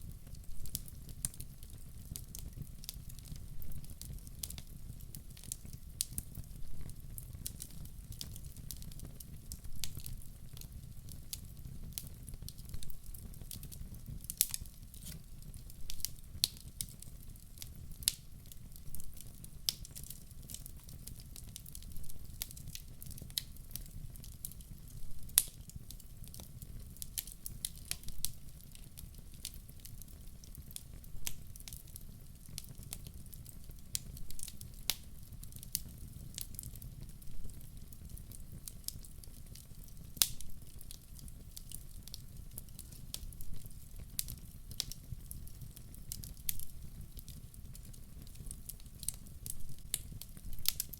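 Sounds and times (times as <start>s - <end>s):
fire crackling and popping: 0.0s - 50.9s.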